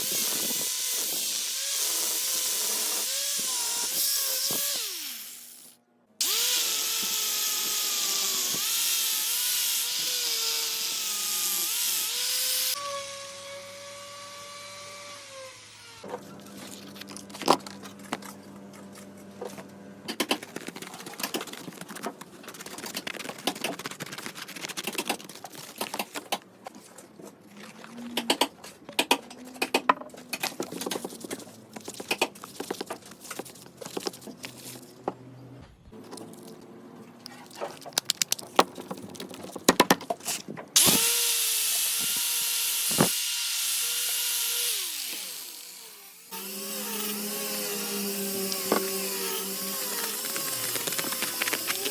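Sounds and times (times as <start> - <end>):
electric drill whining: 0.0 - 16.1, 40.8 - 51.9.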